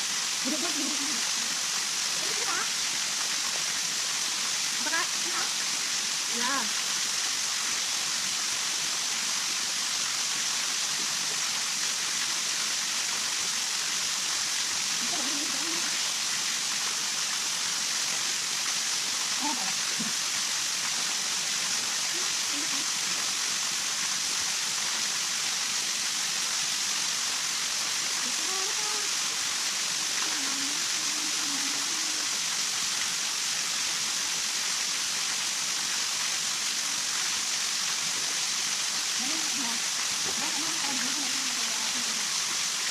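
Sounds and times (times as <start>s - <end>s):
water hissing: 14.4s - 42.9s.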